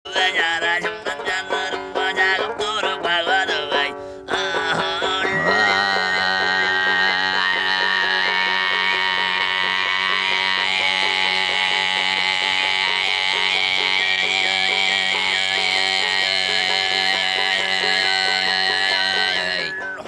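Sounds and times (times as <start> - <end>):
rhythmic strumming: 0.1 - 20.0
throat singing drone: 4.3 - 20.0
whistle-like overtone melody: 19.6 - 20.0.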